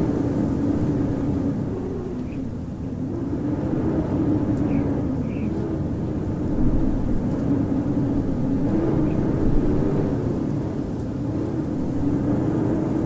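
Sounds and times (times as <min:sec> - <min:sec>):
strong wind howling: 0:00.0 - 0:13.0.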